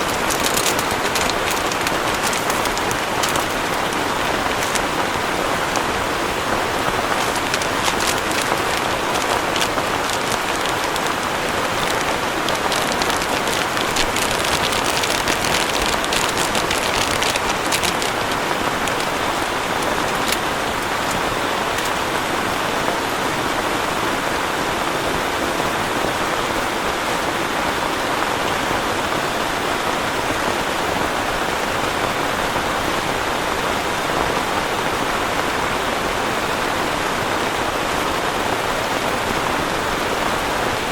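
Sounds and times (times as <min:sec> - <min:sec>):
sharp raindrop ticks: 0:00.0 - 0:22.2
heavy rain falling: 0:00.0 - 0:40.9.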